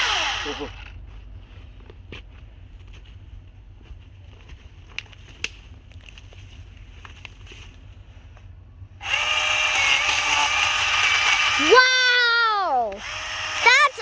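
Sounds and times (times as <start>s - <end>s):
electric chainsaw motor whining: 0.0s - 0.9s, 9.0s - 14.0s
sharp clicks: 12.8s - 13.8s.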